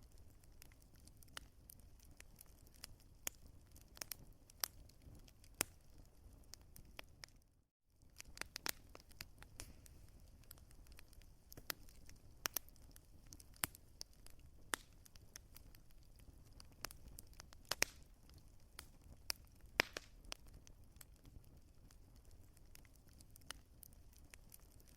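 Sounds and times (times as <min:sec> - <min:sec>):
wood fire crackling: 0:00.0 - 0:24.9.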